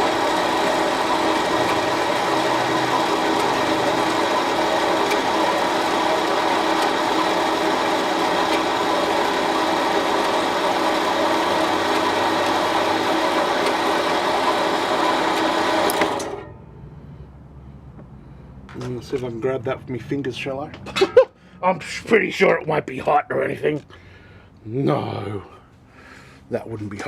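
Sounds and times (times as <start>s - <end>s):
band saw cutting metal: 0.0s - 16.5s.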